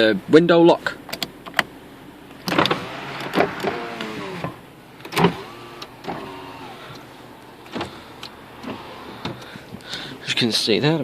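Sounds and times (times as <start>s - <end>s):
power window motor whine: 2.4s - 9.5s.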